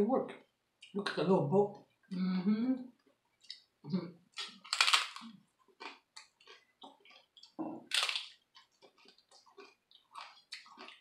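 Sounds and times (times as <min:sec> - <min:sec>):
crackling chewing: 0:04.3 - 0:11.0
taco shell crunching: 0:04.4 - 0:11.0.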